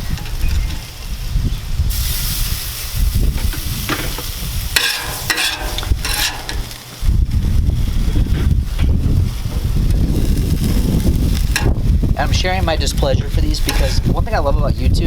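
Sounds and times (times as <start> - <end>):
fish sizzling on a griddle: 0.0 - 8.7, 9.3 - 14.4
metal spatula scraping steel: 4.8 - 6.8, 13.2 - 14.2.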